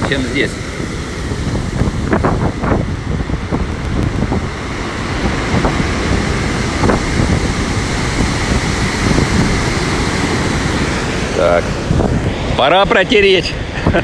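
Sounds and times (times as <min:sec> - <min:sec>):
stormy sea surf: 0:00.0 - 0:14.0
wind buffeting microphone: 0:00.0 - 0:14.0.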